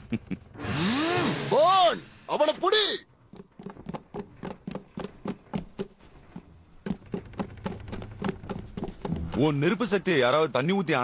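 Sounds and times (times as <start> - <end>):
cartoon running footsteps: 3.1 - 10.2.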